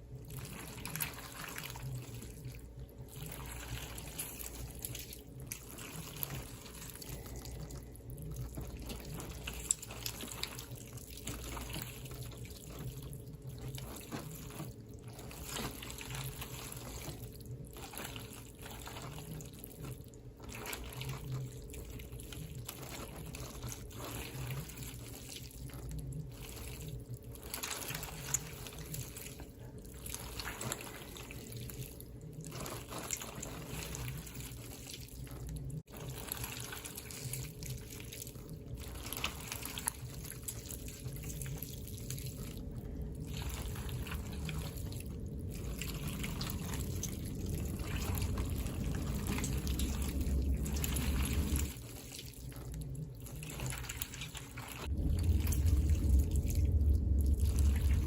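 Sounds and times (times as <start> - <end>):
water trickling and pouring: 0.1 - 58.0
low rumble: 39.8 - 58.0.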